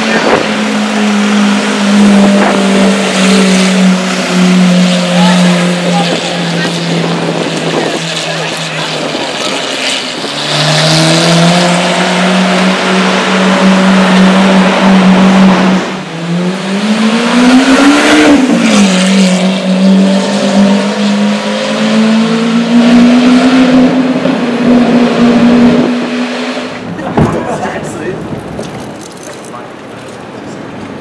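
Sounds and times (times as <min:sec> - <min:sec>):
loud car engine revving: 0:00.0 - 0:29.5.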